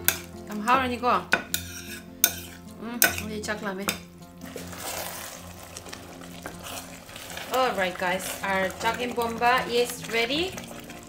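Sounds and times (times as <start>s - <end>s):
spatula stirring pot: 0.0s - 11.0s
fork clinking on ceramic bowl: 1.6s - 3.3s
porridge simmering hiss: 4.4s - 11.0s.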